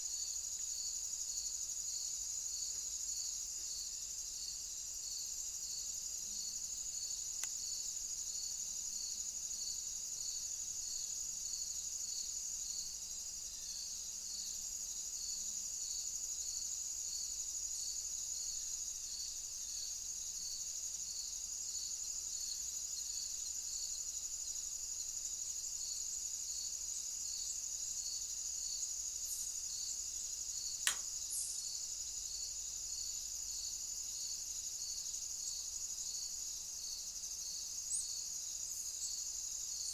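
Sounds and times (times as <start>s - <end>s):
crickets chirping: 0.0s - 39.9s
sharp click: 30.9s - 31.2s.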